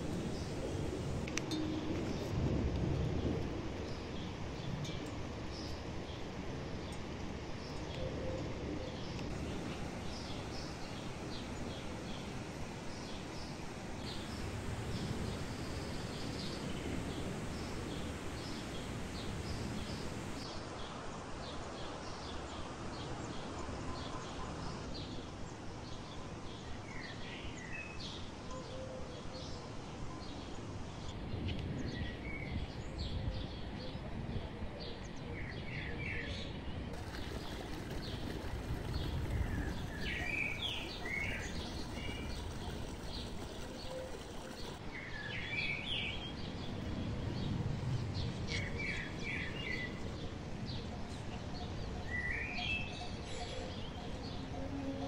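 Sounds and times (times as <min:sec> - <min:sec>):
low rushing background: 0:09.1 - 0:20.5
small birds chirping: 0:09.1 - 0:20.5, 0:36.9 - 0:54.5.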